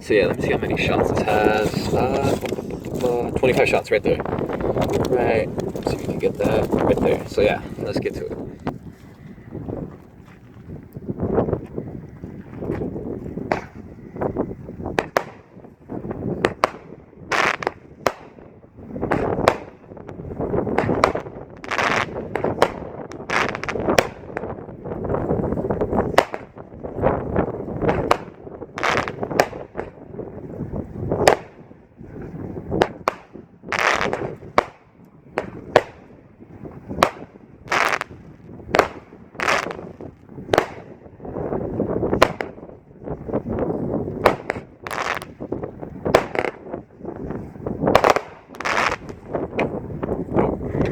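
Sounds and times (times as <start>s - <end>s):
firework cake firing shots: 15.0s - 15.6s, 16.4s - 18.4s, 19.0s - 19.9s, 20.7s - 24.6s, 26.1s - 26.6s, 27.8s - 30.0s, 31.2s - 31.7s, 32.8s - 34.8s, 35.4s - 36.1s, 37.0s - 39.9s, 40.5s - 41.0s, 42.2s - 42.6s, 44.2s - 45.4s, 46.1s - 46.7s, 47.9s - 49.3s.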